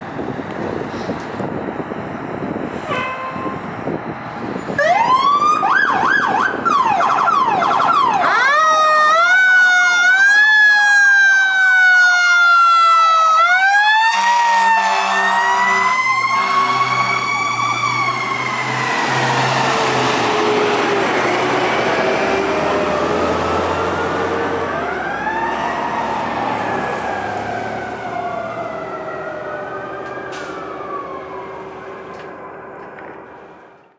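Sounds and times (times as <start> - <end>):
diesel engine: 0.0 - 33.9
low horn blasts: 2.9 - 3.7, 14.1 - 17.3
electronic siren yelping and wailing: 4.8 - 20.2, 21.0 - 32.2.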